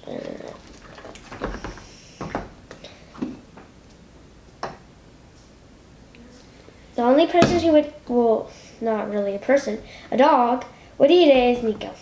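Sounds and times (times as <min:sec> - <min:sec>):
slime mixed in a bowl: 0:00.0 - 0:01.9.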